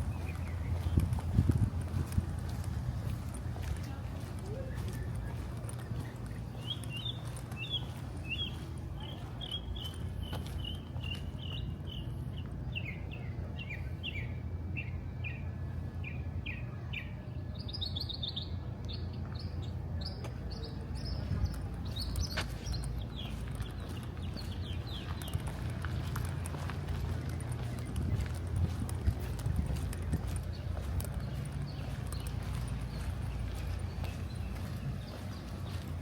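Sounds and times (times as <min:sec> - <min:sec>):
bird chirping: 0:00.0 - 0:01.2, 0:04.2 - 0:15.4, 0:16.0 - 0:36.0.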